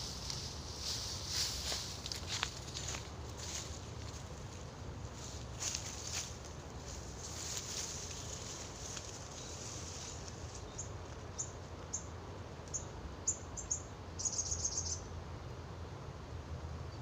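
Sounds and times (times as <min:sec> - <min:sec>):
small bird chirping: 0:12.7 - 0:15.1.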